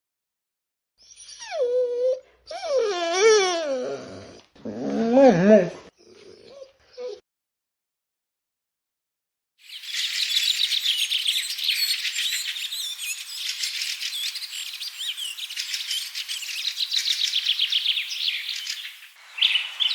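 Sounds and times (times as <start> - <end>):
flock of small birds chirping: 9.6 - 19.9.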